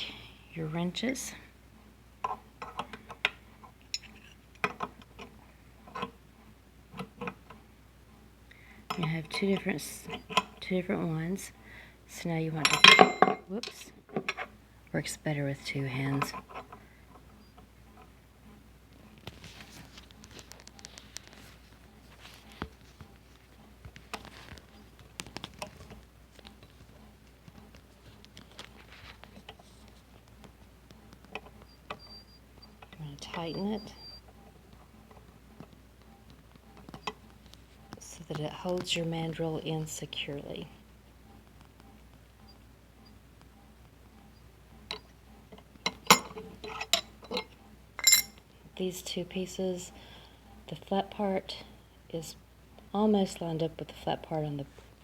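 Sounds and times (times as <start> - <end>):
wrenches clicking and scraping metal: 3.9 - 6.2, 8.9 - 10.8, 44.9 - 48.4
metal wrenches clinking: 4.0 - 4.8, 12.6 - 13.4, 45.9 - 48.4.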